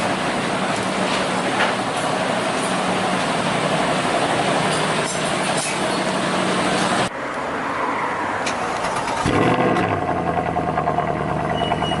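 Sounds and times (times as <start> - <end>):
car engine starting and running: 8.2 - 12.0.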